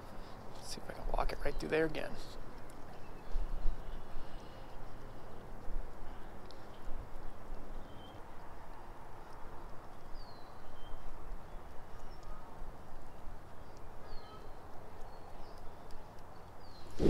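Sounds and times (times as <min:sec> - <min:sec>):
small birds chirping: 0:00.1 - 0:17.0
faint irregular clicks: 0:02.4 - 0:16.8.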